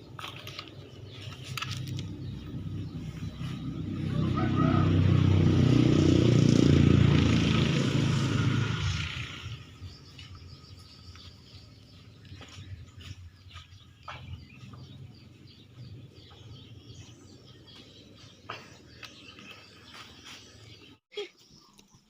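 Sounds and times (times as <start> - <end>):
motor vehicle passing by: 0.6 - 21.0.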